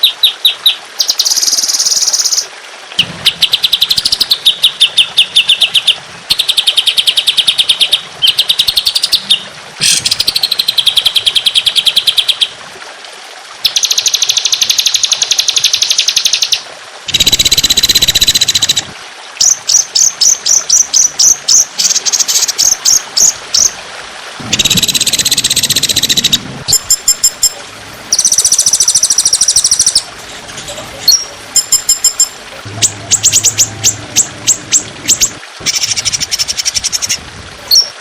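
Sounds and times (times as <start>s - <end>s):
songbird trills: 0.0s - 12.5s, 24.5s - 38.0s.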